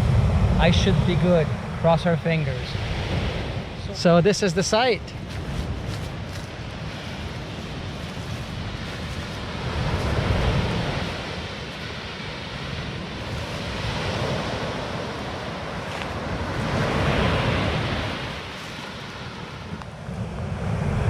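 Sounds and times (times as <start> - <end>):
surf washing onto beach: 0.0 - 21.0
wind rumbling on microphone: 0.0 - 21.0.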